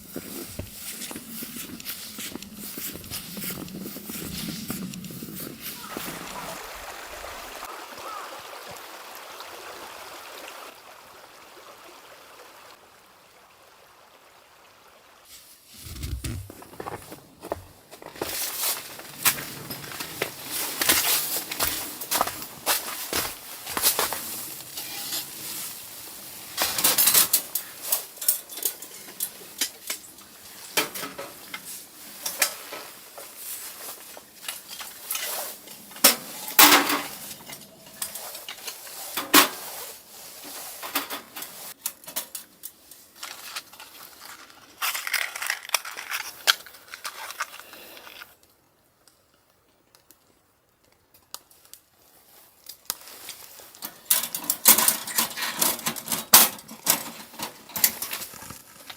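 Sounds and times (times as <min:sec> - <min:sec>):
cookware and utensils clinking: 0:24.7 - 0:25.5, 0:26.6 - 0:32.9, 0:34.5 - 0:39.7.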